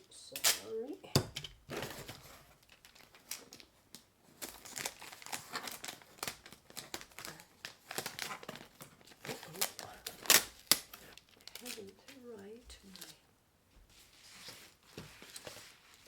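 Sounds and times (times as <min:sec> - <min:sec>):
packing material crinkling: 0:01.7 - 0:13.2.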